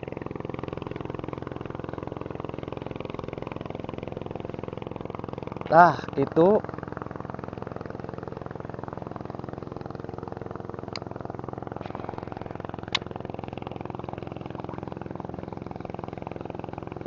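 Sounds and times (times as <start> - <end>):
small engine idling: 0.0 - 17.0.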